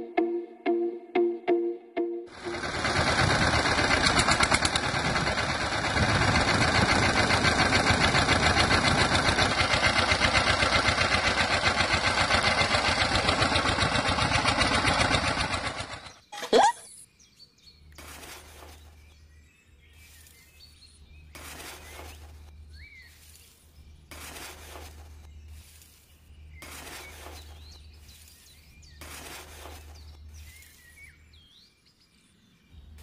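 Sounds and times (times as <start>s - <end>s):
low hum: 0.0s - 16.2s
birds chirping: 2.4s - 33.0s
metal shovel scraping gravelly soil: 18.0s - 19.1s, 21.3s - 31.1s.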